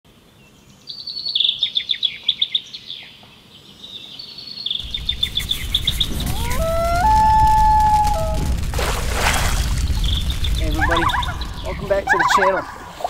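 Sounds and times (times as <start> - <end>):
songbird trilling high chirps: 0.8 - 6.2
low steady rumble: 4.8 - 12.9.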